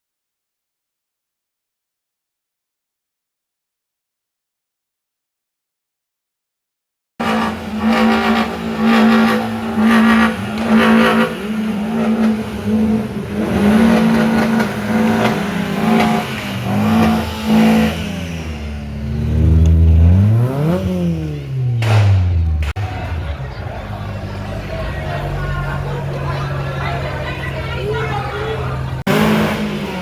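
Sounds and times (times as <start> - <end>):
car engine revving: 7.2 - 30.0.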